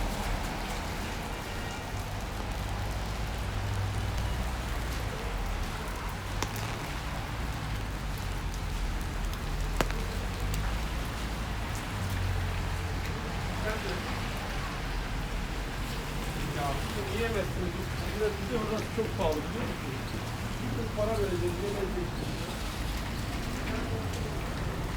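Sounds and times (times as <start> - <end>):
rain pattering on surfaces: 0.0 - 24.9
sharp ticks: 6.3 - 11.0.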